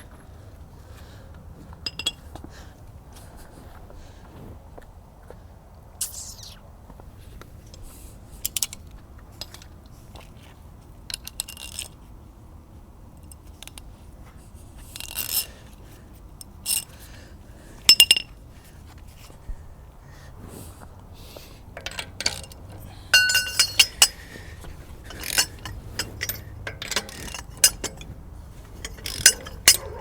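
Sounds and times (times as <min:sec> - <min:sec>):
metallic clinks and scrapes: 0:01.8 - 0:02.3, 0:14.9 - 0:15.5, 0:16.4 - 0:17.0, 0:21.7 - 0:30.0.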